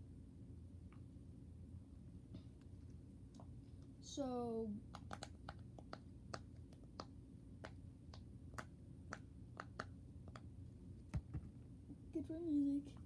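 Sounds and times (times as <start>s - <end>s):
fidget toy clicking: 4.9s - 10.4s.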